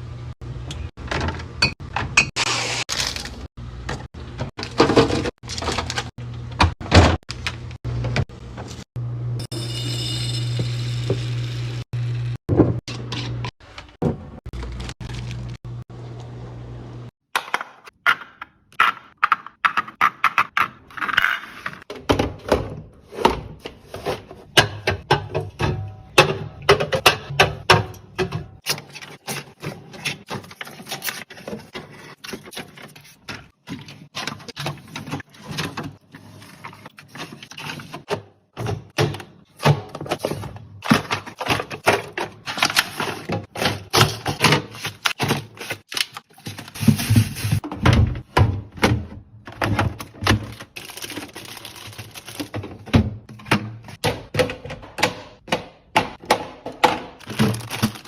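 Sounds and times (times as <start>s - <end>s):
food containers clicking and knocking: 17.4s - 58.0s.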